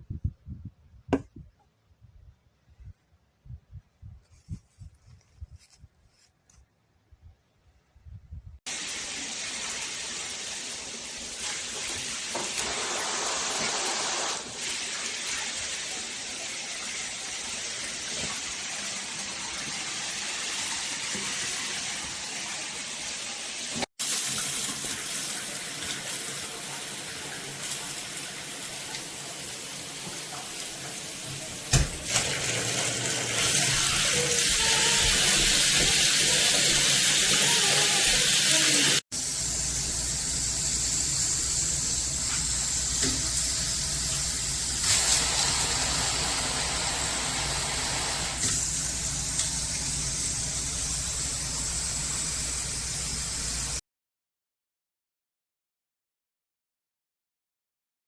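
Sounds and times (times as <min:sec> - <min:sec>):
water spraying from shower head: 0:08.7 - 0:53.8.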